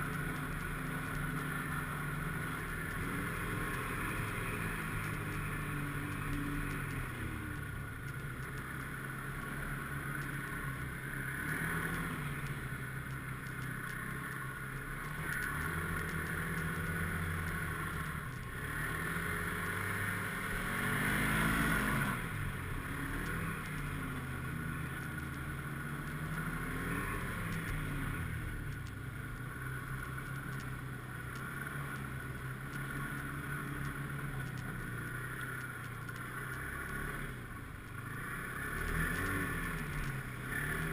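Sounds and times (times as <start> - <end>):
snowmobile engine revving: 18.6 - 24.2, 38.1 - 40.9.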